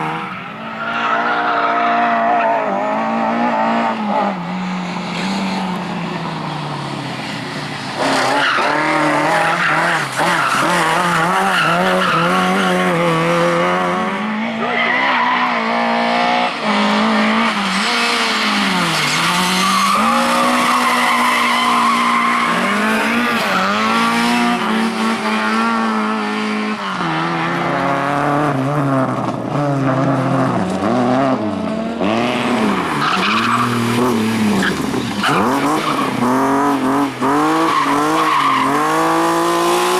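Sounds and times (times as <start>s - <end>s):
rally car engine revving hard: 8.0s - 14.8s, 15.5s - 39.9s
tyres skidding on loose surface: 16.6s - 27.9s.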